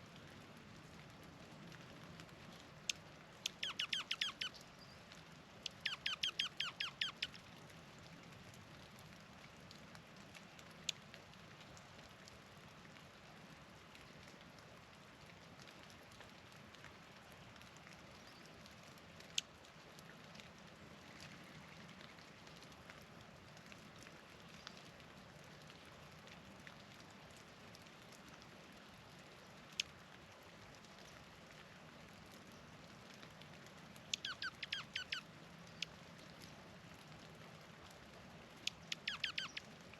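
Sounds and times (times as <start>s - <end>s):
faint steady hiss: 0.0s - 39.9s
bird squeaky slurred notes: 3.5s - 4.5s, 5.7s - 7.3s, 34.1s - 35.2s, 38.7s - 39.6s
bird sharp chips: 38.7s - 39.6s.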